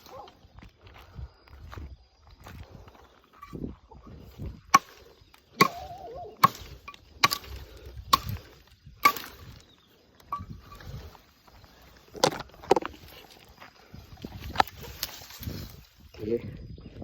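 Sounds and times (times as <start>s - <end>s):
blade chopping wood: 4.7s - 9.6s.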